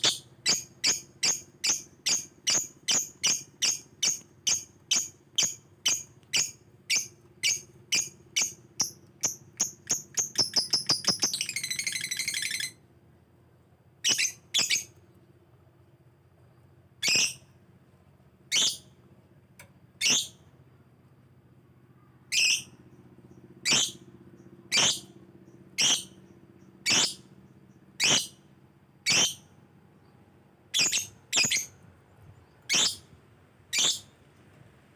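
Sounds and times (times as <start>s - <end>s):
lovebird calling: 0.0s - 12.8s, 14.0s - 15.0s, 17.0s - 17.5s, 18.5s - 18.9s, 20.0s - 20.4s, 22.2s - 22.8s, 23.6s - 24.1s, 24.7s - 25.1s, 25.8s - 27.3s, 28.0s - 28.4s, 29.0s - 29.5s, 30.7s - 33.1s, 33.7s - 34.2s.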